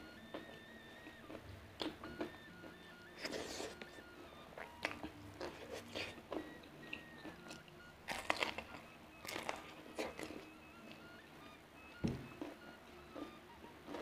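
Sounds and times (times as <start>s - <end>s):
crisp crunching bites: 8.1s - 8.7s.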